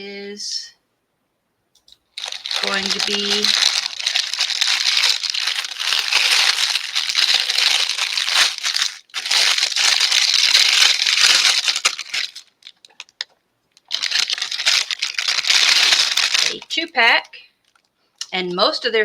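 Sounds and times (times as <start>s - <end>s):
plastic bag crinkling: 2.0s - 17.9s.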